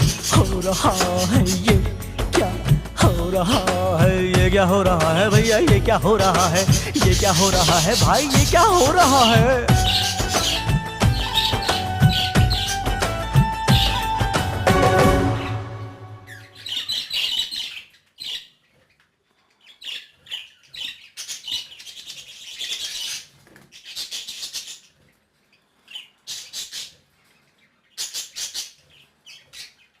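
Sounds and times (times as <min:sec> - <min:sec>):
background music: 0:00.0 - 0:17.0
parrots chirping and chattering: 0:00.0 - 0:30.0.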